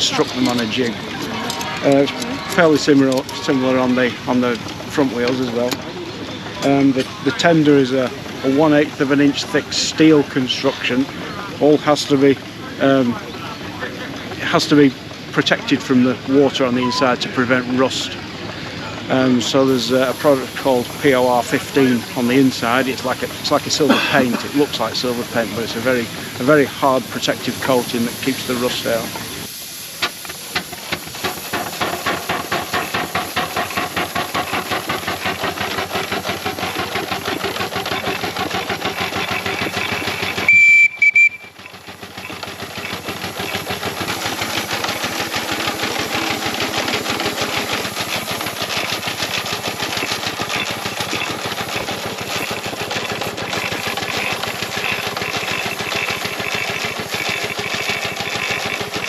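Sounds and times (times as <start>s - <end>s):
steam engine exhaust beating: 0.0s - 59.0s
steam hiss: 18.2s - 40.8s, 41.5s - 59.0s
high steam whistle blast: 40.5s - 41.6s.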